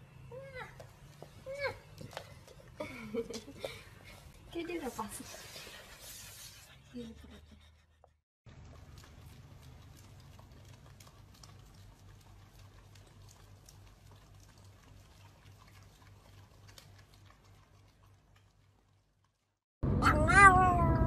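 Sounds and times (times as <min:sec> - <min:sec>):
dogs licking ice cream: 0:08.5 - 0:19.4.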